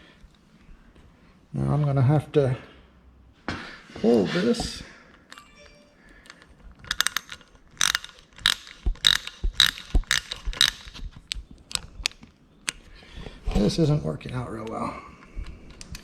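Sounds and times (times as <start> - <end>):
hand ratchet clicking: 6.2 - 12.2.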